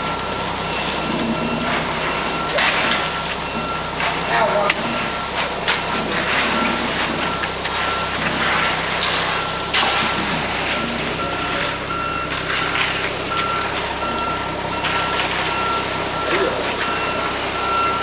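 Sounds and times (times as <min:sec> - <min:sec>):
diesel engine running: 0:00.0 - 0:18.0
truck reversing alarm beeping: 0:00.0 - 0:18.0.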